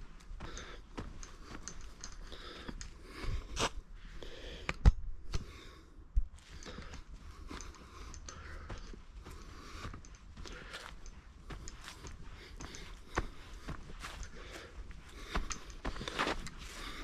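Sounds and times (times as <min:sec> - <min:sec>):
crunching footsteps: 0:06.2 - 0:17.0.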